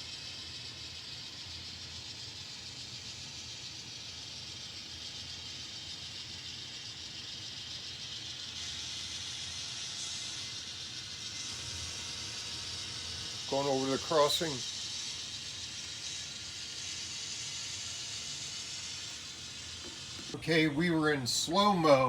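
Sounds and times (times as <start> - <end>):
model train running on track: 0.0 - 21.5.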